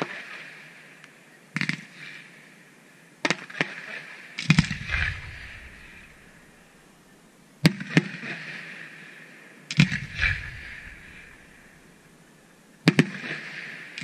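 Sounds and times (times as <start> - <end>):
fireworks shells bursting: 4.4 - 7.0, 9.7 - 12.2.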